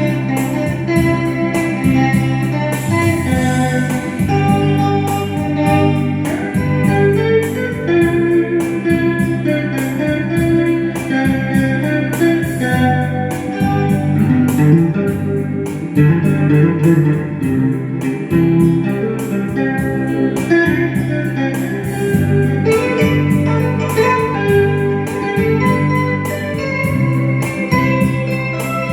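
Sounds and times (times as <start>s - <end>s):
bass line: 0.0s - 28.9s
guitar melody: 0.0s - 28.9s
steady beat: 0.0s - 28.9s.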